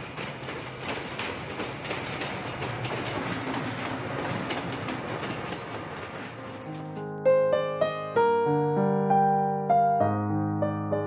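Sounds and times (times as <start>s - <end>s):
train rumbling past: 0.0s - 7.1s
wheels clicking over rail joints: 0.0s - 7.1s.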